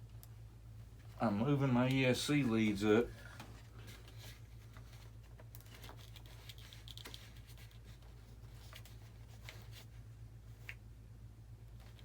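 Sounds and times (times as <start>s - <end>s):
steady low hum: 0.0s - 12.0s
clicks and rustles of handling plastic parts: 1.8s - 10.9s, 11.7s - 12.0s.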